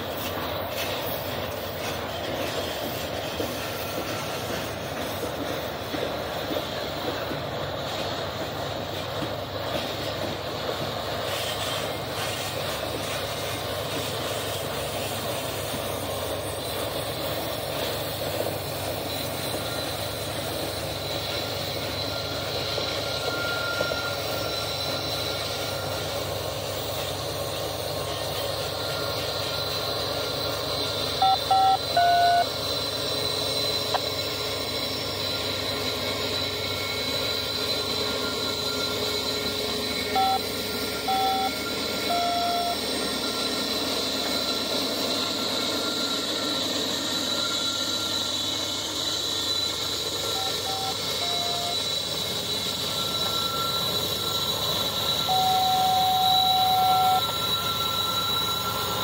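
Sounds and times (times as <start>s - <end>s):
freight train rumbling past: 0.0s - 59.0s
short electronic beeps: 31.2s - 32.6s, 40.1s - 43.3s, 50.3s - 51.9s, 52.8s - 59.0s.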